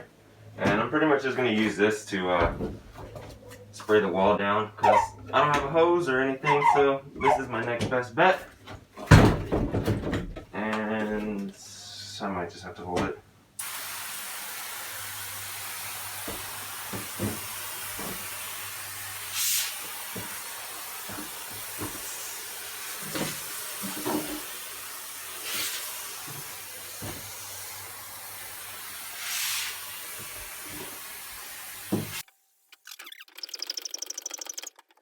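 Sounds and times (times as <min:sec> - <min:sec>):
pressure sprayer hissing: 0:13.6 - 0:32.2.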